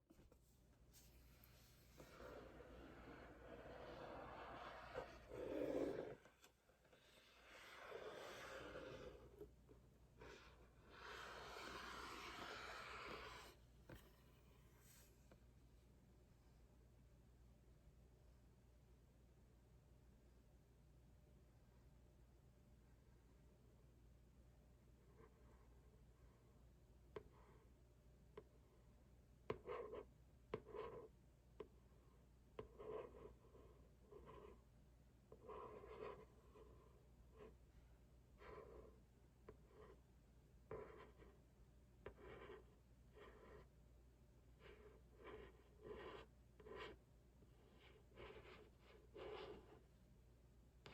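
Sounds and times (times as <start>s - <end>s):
fingernails scratching cardboard: 2.0s - 9.5s, 10.2s - 13.6s.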